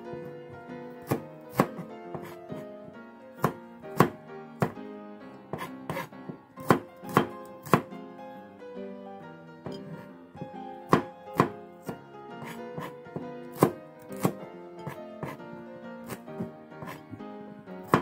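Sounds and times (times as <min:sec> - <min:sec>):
soft background music: 0:00.0 - 0:18.0
knife knocking on cutting board: 0:09.6 - 0:11.5.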